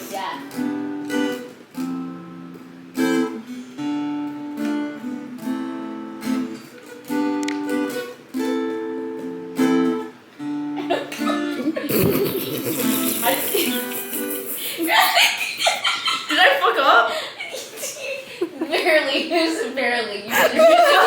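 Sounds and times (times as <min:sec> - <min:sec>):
acoustic guitar strumming chords: 0:00.0 - 0:14.7.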